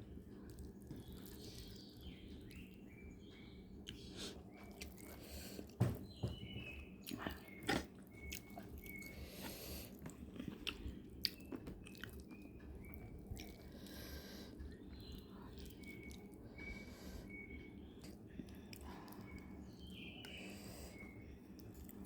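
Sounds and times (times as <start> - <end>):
person chewing crunchy food: 0.5 - 2.7, 7.0 - 16.4.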